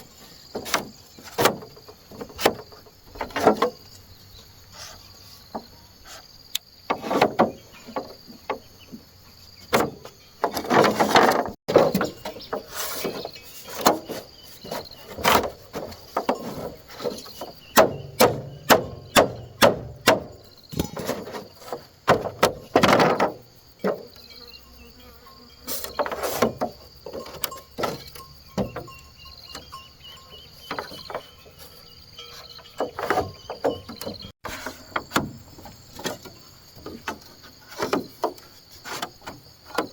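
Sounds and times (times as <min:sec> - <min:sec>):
insects chirring: 0:00.0 - 0:39.9
sharp knocks and strikes: 0:16.1 - 0:21.4.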